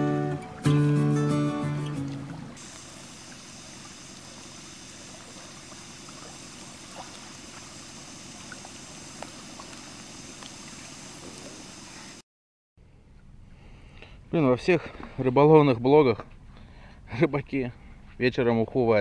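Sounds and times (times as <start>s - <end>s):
water washing on river shore: 2.0s - 12.2s.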